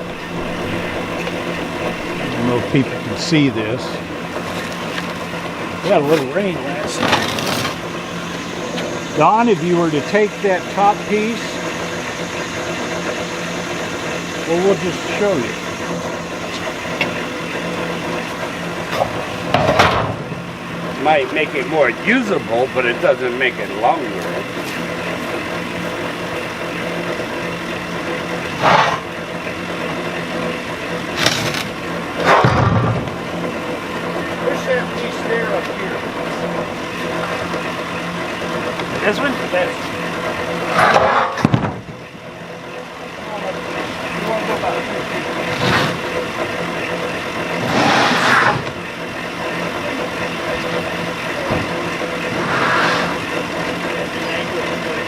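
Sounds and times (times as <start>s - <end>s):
rushing swells: 0.0s - 3.7s
vehicle engine idling: 0.0s - 47.8s, 48.6s - 55.0s.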